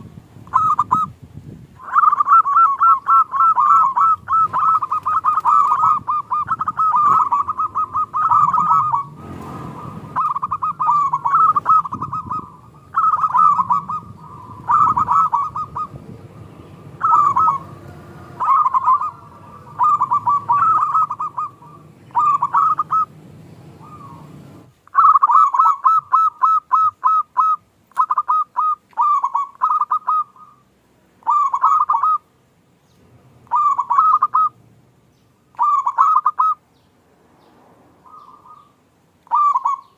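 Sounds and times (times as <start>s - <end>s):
dove cooing: 0.0s - 1.2s, 1.8s - 32.3s, 33.4s - 34.6s, 35.5s - 36.6s, 38.0s - 39.9s
low background rumble: 4.2s - 24.8s.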